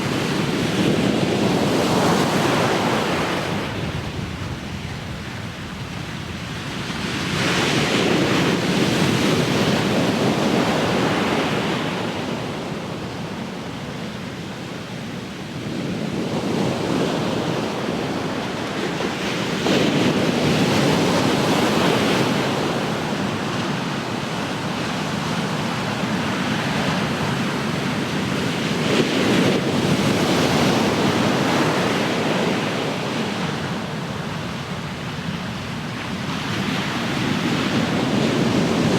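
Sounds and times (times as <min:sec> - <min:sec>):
ocean waves breaking on shore: 0:00.0 - 0:38.9
wind on microphone: 0:15.4 - 0:38.9.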